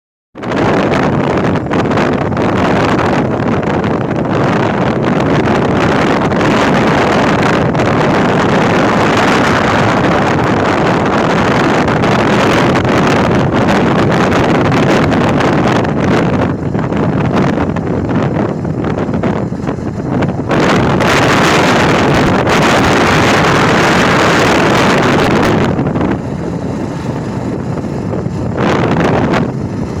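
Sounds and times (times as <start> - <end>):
motorcycle running: 0.4 - 30.0
wind rushing over microphone: 0.4 - 30.0.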